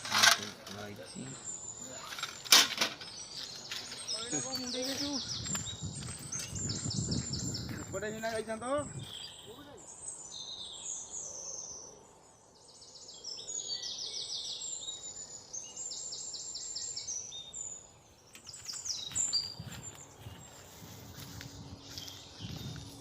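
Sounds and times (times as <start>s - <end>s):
birds chirping trills: 0.0s - 23.0s.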